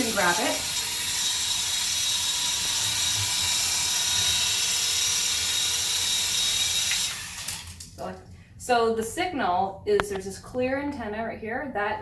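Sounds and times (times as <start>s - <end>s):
toy helicopter whirring: 0.0s - 7.9s.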